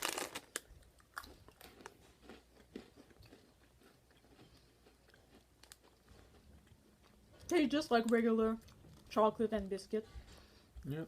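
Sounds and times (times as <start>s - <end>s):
cookie crunching and chewing: 0.0s - 9.3s.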